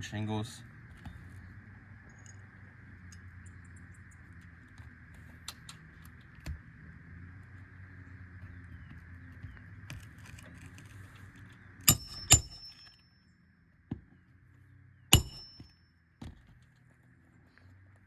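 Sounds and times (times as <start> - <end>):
hammer clanging on metal: 11.9 - 13.0, 15.1 - 15.7.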